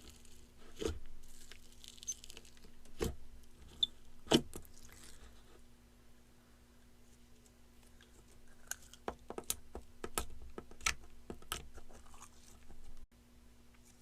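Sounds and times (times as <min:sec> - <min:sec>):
slime sticky crackle: 0:01.2 - 0:02.7.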